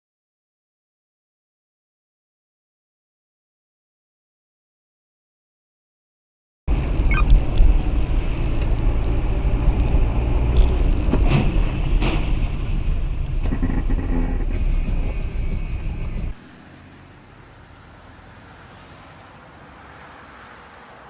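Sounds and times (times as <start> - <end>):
car engine and road noise: 6.7 - 21.0.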